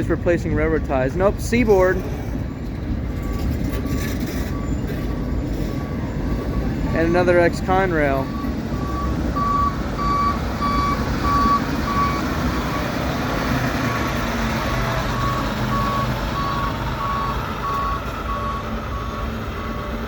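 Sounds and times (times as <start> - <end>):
freight cars rolling: 0.0 - 20.0
truck backup alarm beeping: 0.0 - 20.0.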